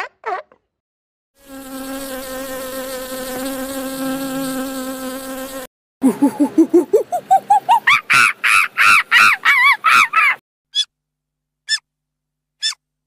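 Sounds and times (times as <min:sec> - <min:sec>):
flying insect buzzing: 0:01.4 - 0:05.7.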